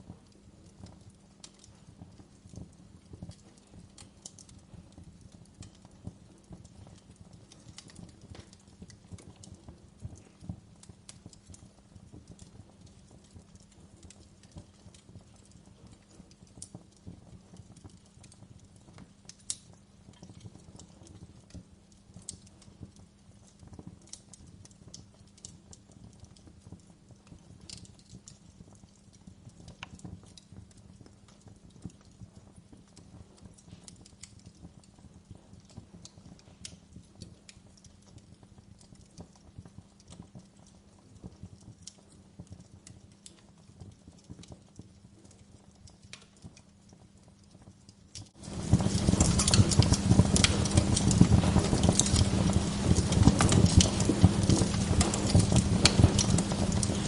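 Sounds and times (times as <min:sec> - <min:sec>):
wood fire crackling: 0:00.0 - 0:57.0
low steady hum: 0:48.4 - 0:57.0.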